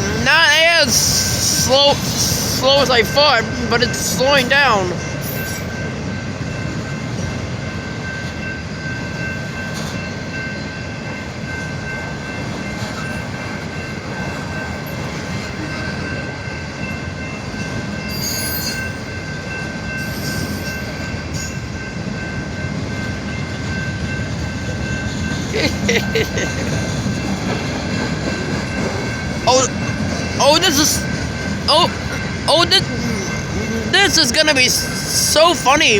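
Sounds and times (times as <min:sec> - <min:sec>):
freight train wheels rumbling: 0:00.0 - 0:35.9
thin high squeal: 0:18.2 - 0:19.0.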